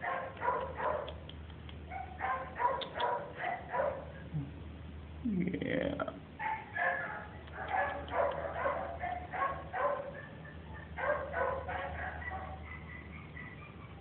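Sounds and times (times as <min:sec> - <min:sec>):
dog barking: 0:00.0 - 0:01.2, 0:01.9 - 0:04.2, 0:06.4 - 0:14.0.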